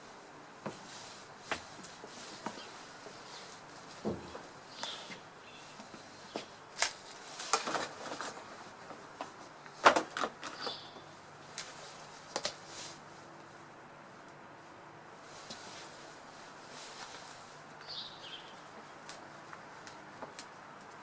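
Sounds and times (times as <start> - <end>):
faint bird chirps: 4.7 - 6.4.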